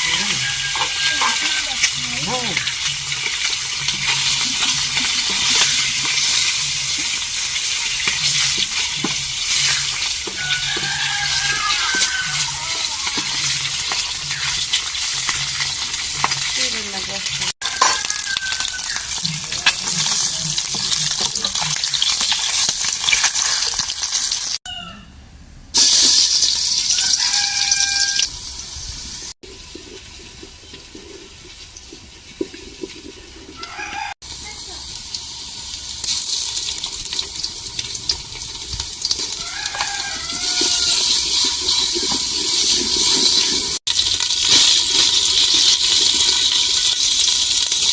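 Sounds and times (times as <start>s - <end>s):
rooster crowing: 0.0s - 1.9s, 10.3s - 13.3s, 17.6s - 19.2s, 24.6s - 25.2s, 26.8s - 28.3s, 33.6s - 34.2s, 39.3s - 41.3s
chickens calling: 0.0s - 3.2s, 9.6s - 14.7s, 17.6s - 19.9s, 26.9s - 28.4s, 39.2s - 41.6s
food sizzling: 0.0s - 24.6s, 25.8s - 47.9s.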